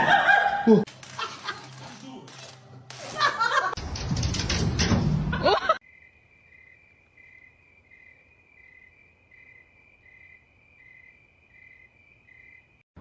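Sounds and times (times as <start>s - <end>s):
crickets chirping: 5.8s - 12.8s.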